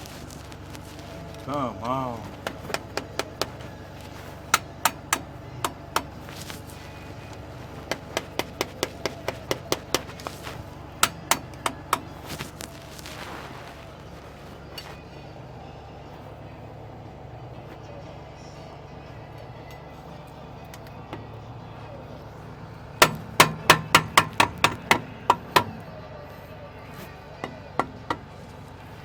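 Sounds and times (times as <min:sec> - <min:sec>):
steady low hum: 0:00.0 - 0:29.0
hammer striking metal: 0:02.4 - 0:06.6, 0:07.8 - 0:12.4, 0:23.0 - 0:25.8.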